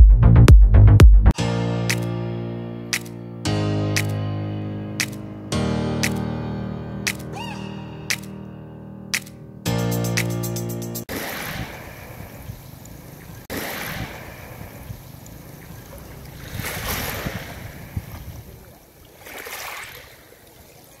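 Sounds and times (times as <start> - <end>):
waves on pebble beach: 11.1 - 21.0
wind rumble on microphone: 16.4 - 18.7.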